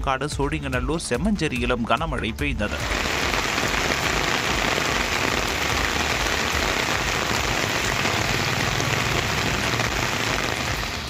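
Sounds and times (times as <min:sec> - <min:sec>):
rain falling on ground and water: 0:02.7 - 0:11.0.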